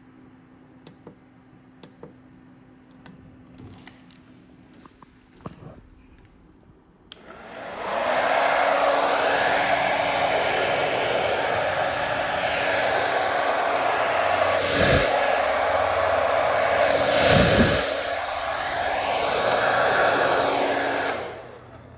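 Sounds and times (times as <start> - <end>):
electric blower motor running: 7.2 - 21.6.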